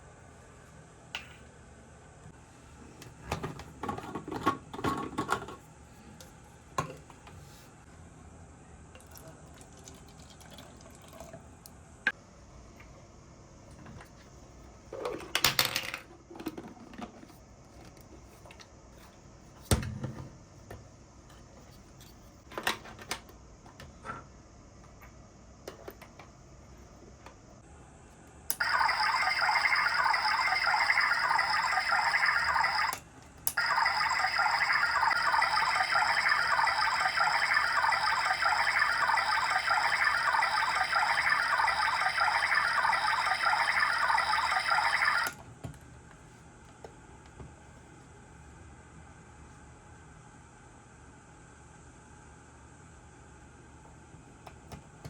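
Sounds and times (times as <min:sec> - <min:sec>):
toy motor whining: 0:28.6 - 0:33.0, 0:33.6 - 0:45.3.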